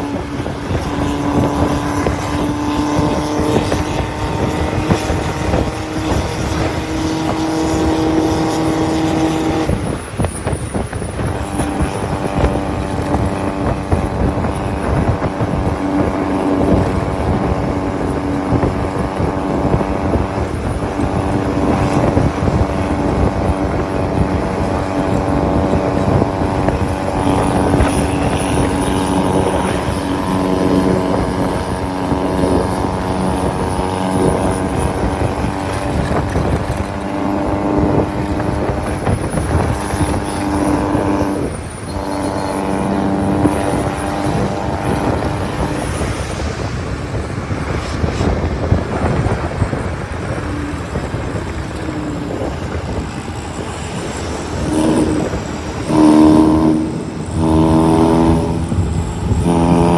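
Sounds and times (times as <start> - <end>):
diesel engines droning: 0.0 - 59.9
loud pitched horn blasts: 0.0 - 59.9.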